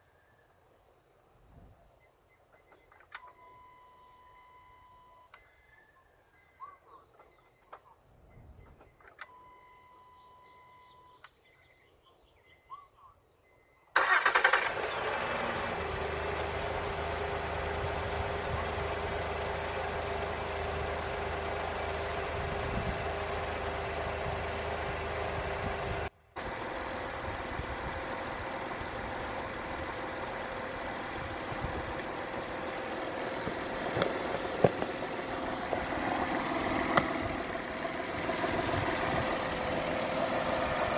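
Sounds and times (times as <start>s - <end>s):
faint electronic beeping: 1.8s - 7.6s, 8.2s - 13.9s
car engine starting and idling: 14.0s - 40.9s.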